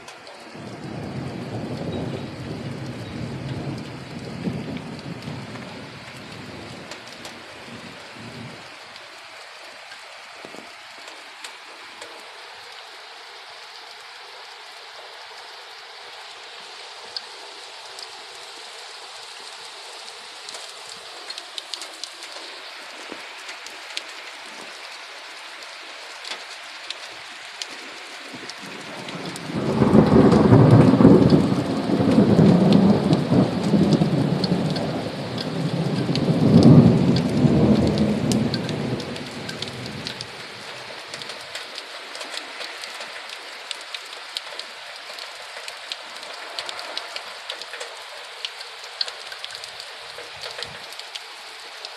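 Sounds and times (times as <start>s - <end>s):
sharp rain drop ticks: 0.0s - 51.9s
steady rain falling: 0.0s - 51.9s
thunder rolling: 0.6s - 7.0s, 29.0s - 40.2s.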